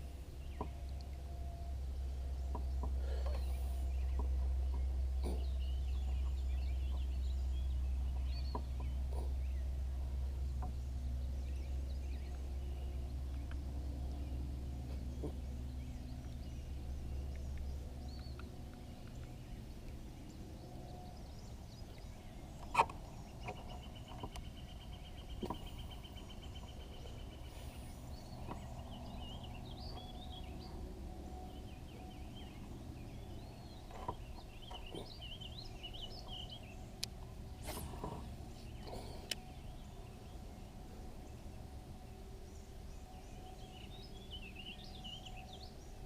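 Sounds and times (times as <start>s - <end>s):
low steady rumble: 0.0s - 46.0s
faint bird calls: 2.5s - 7.2s, 8.1s - 9.7s, 13.4s - 17.4s, 31.5s - 36.8s.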